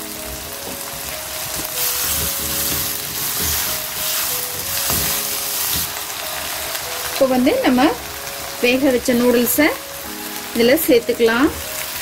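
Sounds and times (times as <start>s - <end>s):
vegetables sizzling in a wok: 0.0s - 12.0s
spatula stirring in a wok: 0.6s - 6.8s.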